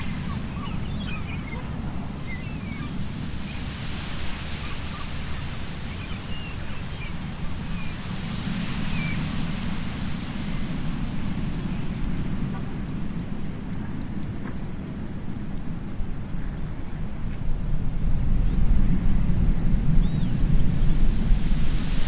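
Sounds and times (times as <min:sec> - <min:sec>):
wind buffeting microphone: 0:00.0 - 0:22.0
sea surf: 0:01.7 - 0:12.6, 0:15.7 - 0:22.0.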